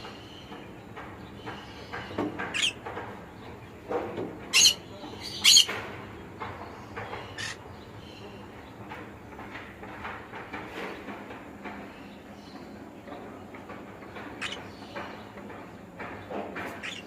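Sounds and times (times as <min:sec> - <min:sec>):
soft parrot chatter: 0:00.0 - 0:17.0
parrot squawks: 0:04.5 - 0:05.7.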